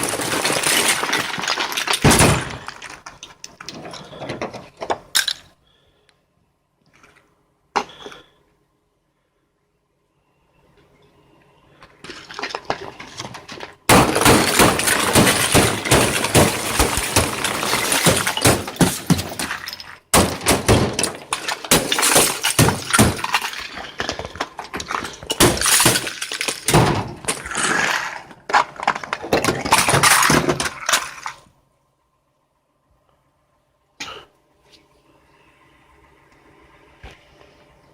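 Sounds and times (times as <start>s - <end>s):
ice cracking and scraping: 0.0s - 4.2s, 21.0s - 31.4s.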